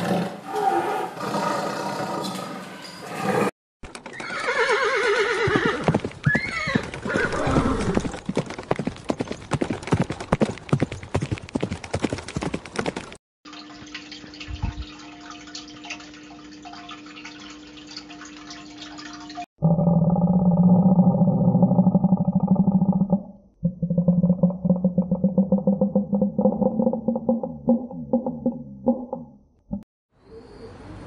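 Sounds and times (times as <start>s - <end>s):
horse neighing: 4.2s - 8.1s.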